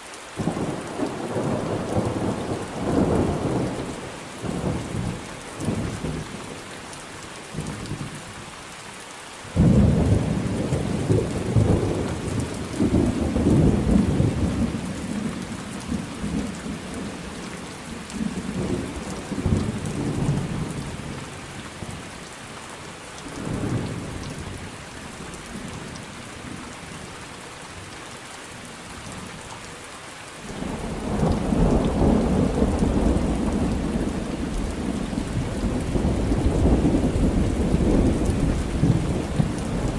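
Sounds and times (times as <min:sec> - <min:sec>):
rain hissing: 0:30.4 - 0:39.9
rolling thunder: 0:30.6 - 0:39.9.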